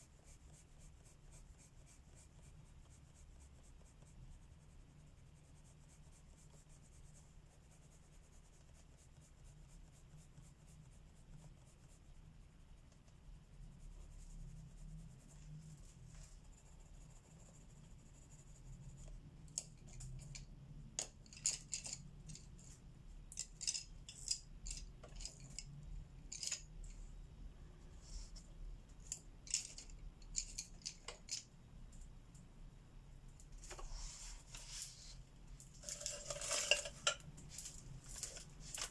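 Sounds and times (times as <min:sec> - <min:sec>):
pencil scratching on paper: 0:00.0 - 0:19.8
pencils clicking and clinking: 0:19.5 - 0:22.7, 0:23.3 - 0:27.0, 0:29.0 - 0:31.5, 0:35.8 - 0:38.9.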